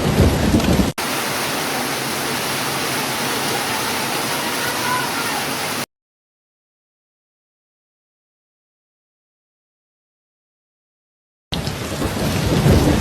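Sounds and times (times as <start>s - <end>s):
falling water rushing: 0.0s - 5.9s.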